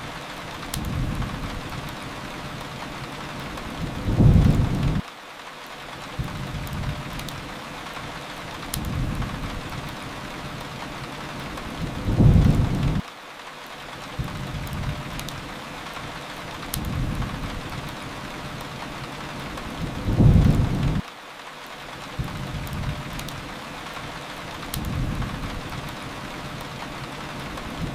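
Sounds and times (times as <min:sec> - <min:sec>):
steady rain: 0:00.0 - 0:27.9
thunder rumbling: 0:03.7 - 0:05.0, 0:11.6 - 0:13.0, 0:19.4 - 0:21.0, 0:24.8 - 0:27.9.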